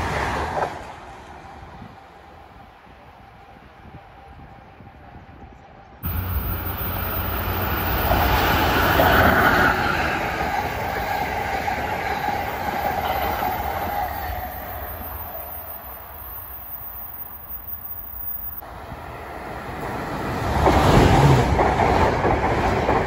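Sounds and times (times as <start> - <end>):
train wheels rushing on rail: 6.0 - 23.0.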